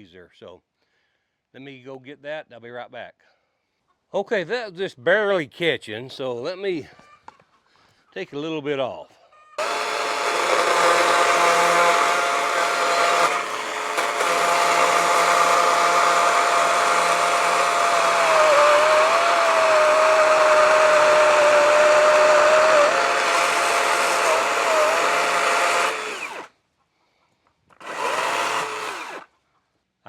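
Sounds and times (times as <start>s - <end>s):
chainsaw cutting log: 9.6s - 26.5s, 27.8s - 29.3s.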